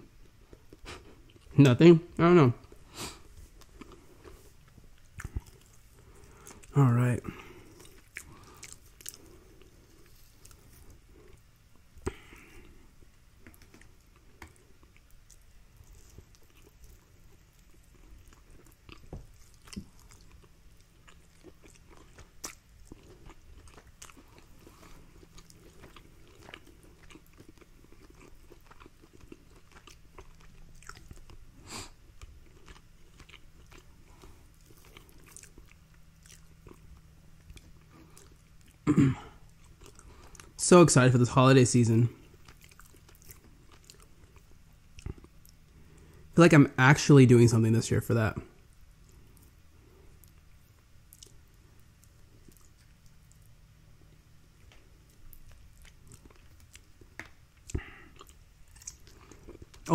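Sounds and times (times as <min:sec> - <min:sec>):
person chewing food: 0:00.0 - 0:01.6, 0:02.6 - 0:40.6, 0:42.1 - 0:46.4, 0:48.4 - 0:59.9.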